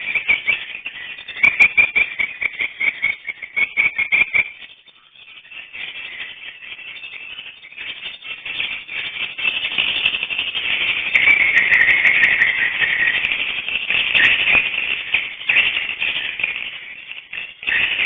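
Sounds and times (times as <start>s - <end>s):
swiftlets chirping chorus: 5.3s - 18.0s.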